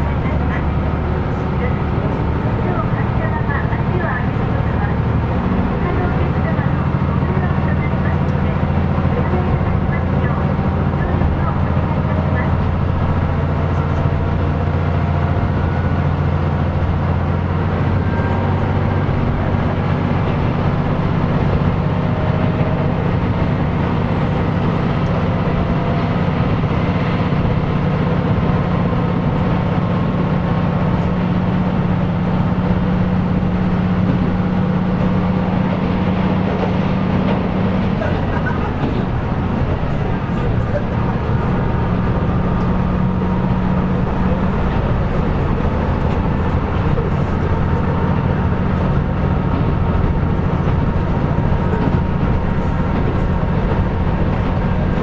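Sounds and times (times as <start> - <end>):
diesel railcar engine running: 0.0 - 55.0
wheels rumbling on rails: 0.0 - 55.0.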